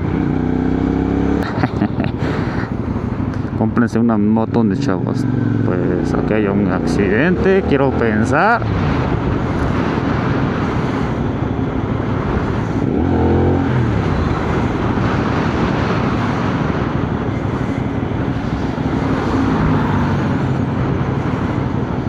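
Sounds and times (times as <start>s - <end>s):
motorcycle engine running: 0.0s - 22.0s
wind rush: 6.4s - 22.0s.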